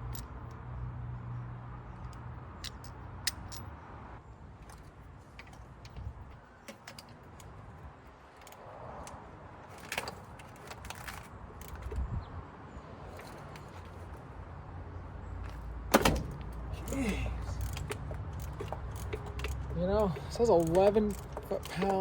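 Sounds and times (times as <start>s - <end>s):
hand tools clicking on metal: 16.8s - 22.0s.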